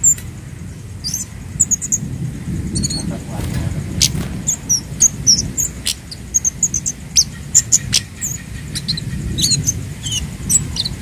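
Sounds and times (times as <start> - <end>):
low background rumble: 0.0 - 11.0
bird high chips and ticks: 1.0 - 2.1, 2.7 - 11.0.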